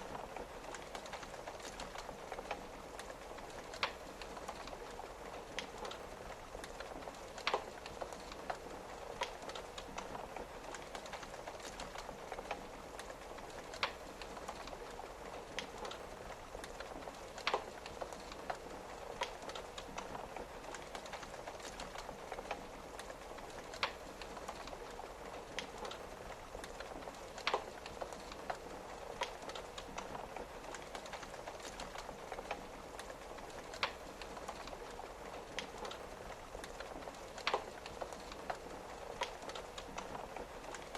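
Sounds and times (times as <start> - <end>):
log fire crackling and popping: 0.0 - 40.9
rain pattering on a window: 0.0 - 40.9.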